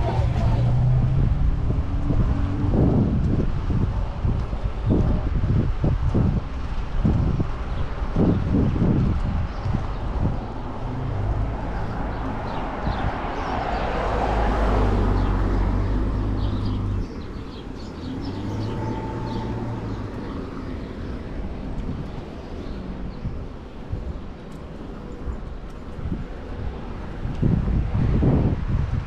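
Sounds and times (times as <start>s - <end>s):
vehicle passing: 0.0s - 5.4s, 8.7s - 23.2s
city street traffic rumble: 0.0s - 29.0s.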